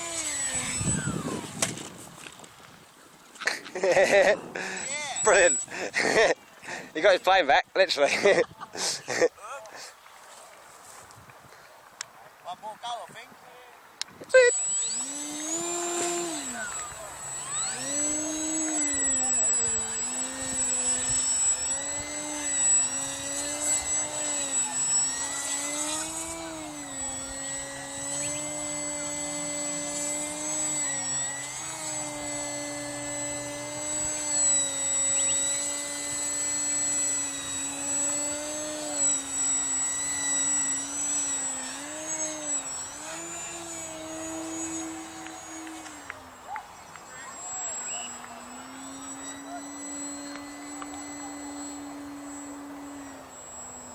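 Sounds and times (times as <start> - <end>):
model aeroplane engine: 0.0 - 7.4, 14.0 - 53.9
faint high whistle: 46.5 - 48.4.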